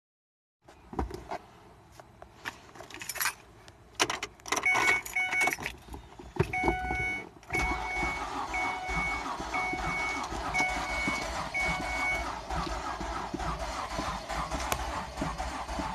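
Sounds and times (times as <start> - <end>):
keys jangling: 2.8 - 3.4
dashboard warning chime beeping: 4.6 - 5.6, 6.4 - 12.5
starter cranking engine: 7.5 - 15.9.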